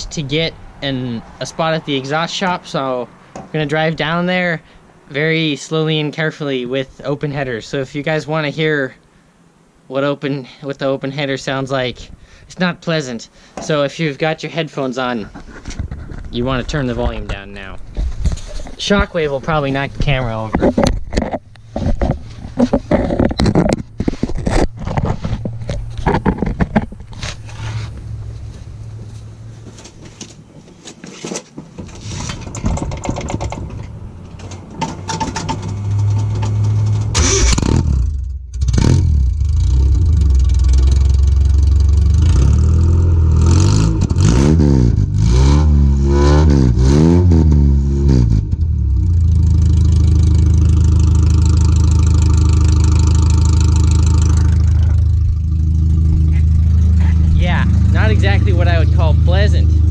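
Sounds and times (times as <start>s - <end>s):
knocks and clicks: 31.4s - 37.7s
loud engine revving and idling: 37.1s - 59.9s.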